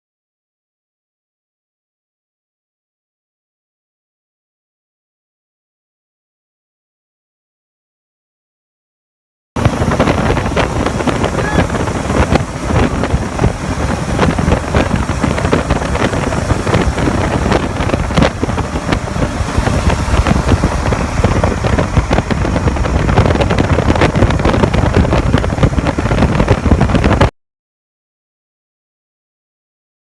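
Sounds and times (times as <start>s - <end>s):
motorcycle noise: 9.6s - 27.3s
wind rush on microphone: 9.6s - 27.3s.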